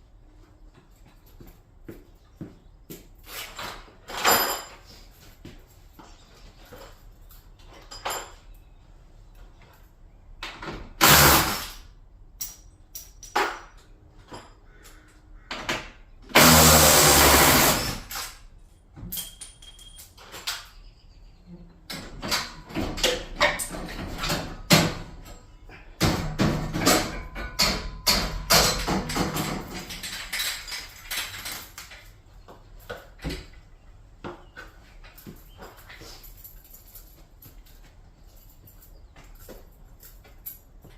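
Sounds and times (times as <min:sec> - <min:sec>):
knocks clanks and rattles: 0:02.4 - 0:08.8, 0:12.4 - 0:16.6, 0:17.5 - 0:20.8, 0:21.8 - 0:40.9
power tool burst: 0:11.0 - 0:11.8, 0:16.3 - 0:18.4.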